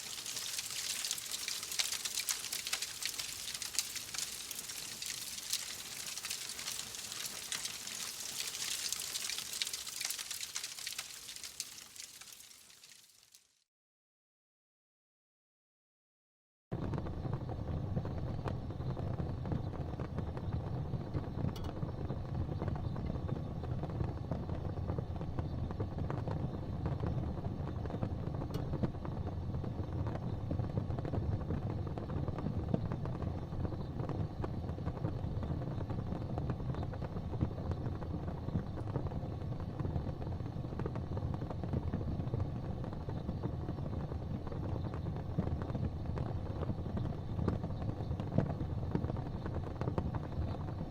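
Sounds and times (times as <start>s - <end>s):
fire roaring and crackling: 0.0s - 13.3s
fire popping: 0.0s - 13.4s, 16.9s - 50.9s.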